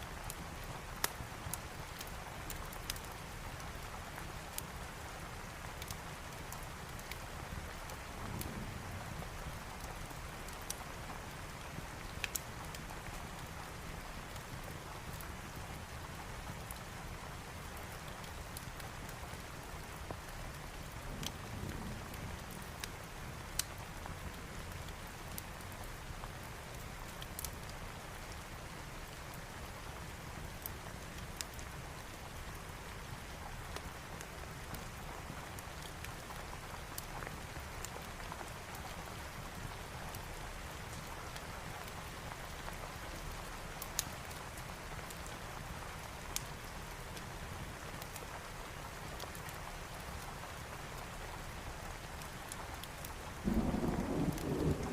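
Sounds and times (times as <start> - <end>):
steady rain: 0.0 - 54.9
wood fire crackling pops: 12.2 - 12.9, 52.8 - 54.9.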